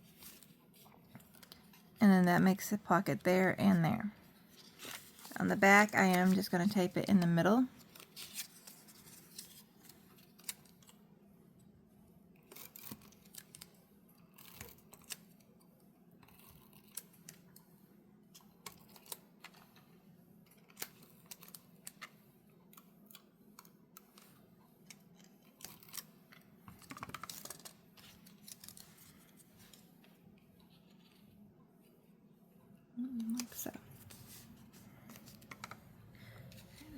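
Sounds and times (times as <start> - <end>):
paper and tape handling: 4.5 - 11.0, 26.7 - 29.9.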